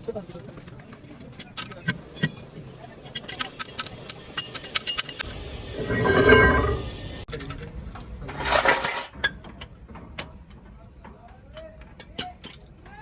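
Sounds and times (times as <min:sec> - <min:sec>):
metal tools clinking: 0:03.1 - 0:06.8, 0:08.2 - 0:11.2
ringing metal rattle: 0:03.1 - 0:06.8, 0:08.3 - 0:11.3.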